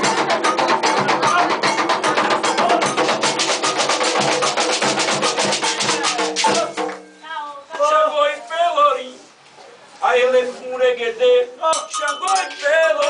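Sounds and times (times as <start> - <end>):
hand drums playing fast rhythm: 0.0 - 7.1.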